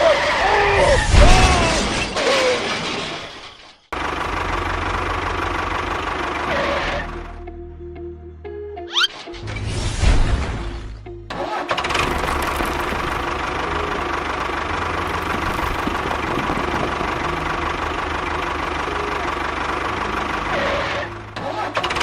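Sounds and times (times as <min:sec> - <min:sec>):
background music: 0:06.9 - 0:11.8
small engine starting and running: 0:11.4 - 0:22.0.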